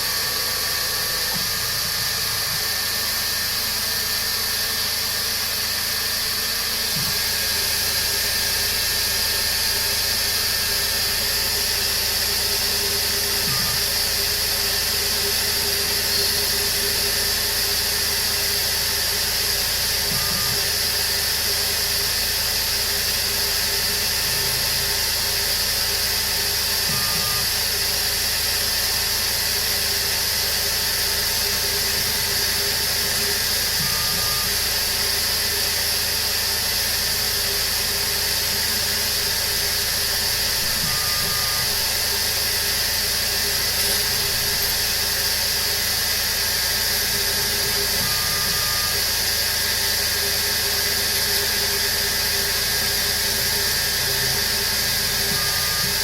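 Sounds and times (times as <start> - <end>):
milling machine hum and hiss: 0.0 - 56.0
faint short tone: 40.6 - 42.0.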